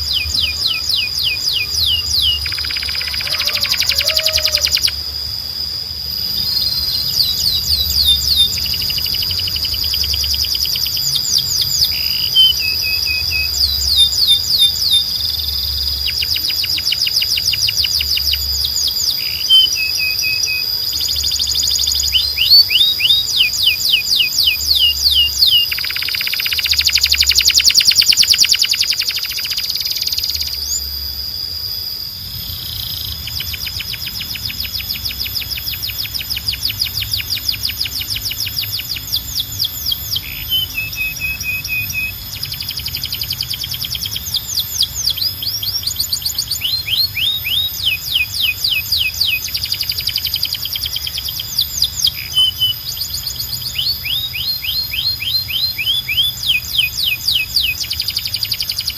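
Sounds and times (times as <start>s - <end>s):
canary singing trills: 0.0s - 58.9s
steady high whistle: 0.0s - 58.9s.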